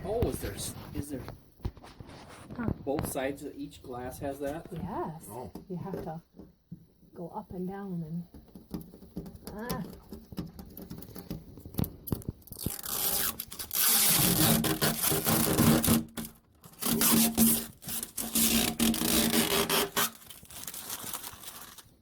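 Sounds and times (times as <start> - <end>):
plastic film peeled off glass: 11.7 - 22.0.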